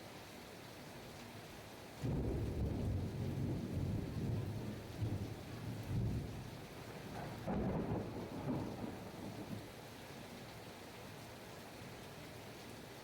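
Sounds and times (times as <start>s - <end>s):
heavy rain: 0.0s - 13.0s
rolling thunder: 2.0s - 6.4s, 7.2s - 9.6s.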